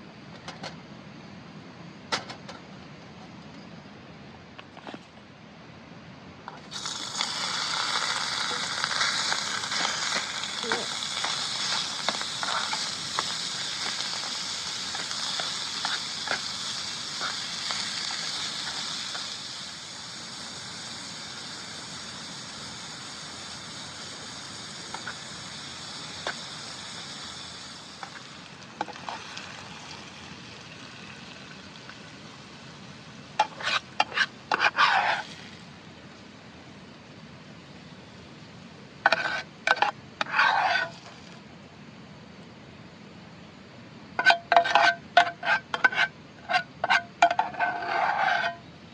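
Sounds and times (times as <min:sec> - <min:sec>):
small crackles: 0:06.5 - 0:19.8
food sizzling in a pan: 0:06.7 - 0:35.8, 0:39.1 - 0:41.3, 0:44.2 - 0:48.5.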